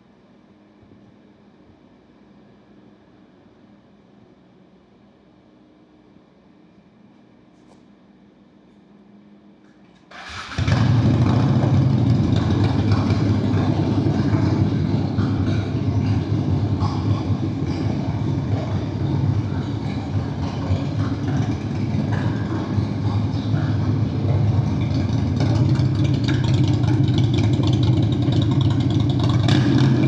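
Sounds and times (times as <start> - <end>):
motorcycle engine starting and idling: 10.0 - 30.0.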